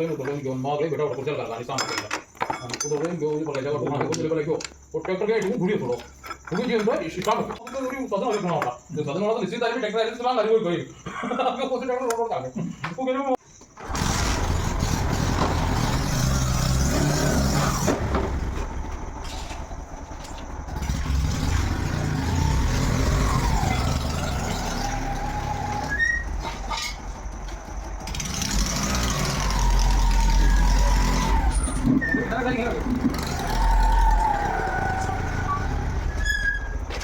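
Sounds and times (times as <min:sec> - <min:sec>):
vehicle engine rumbling: 0:13.8 - 0:37.0.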